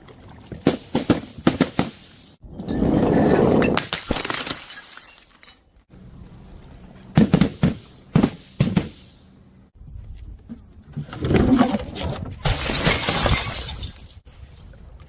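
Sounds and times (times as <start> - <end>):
glass bottle shattering: 3.6 - 5.7, 12.4 - 14.2.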